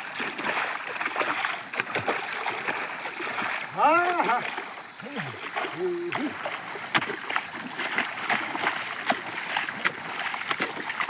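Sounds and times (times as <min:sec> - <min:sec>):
running water rushing: 0:00.0 - 0:11.0
water splashing and sloshing: 0:00.0 - 0:11.0.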